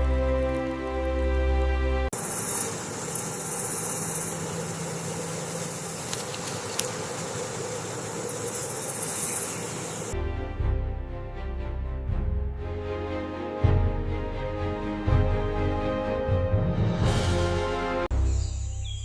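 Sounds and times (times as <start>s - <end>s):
soft background music: 0.0s - 2.1s
insect chirring: 2.2s - 10.2s.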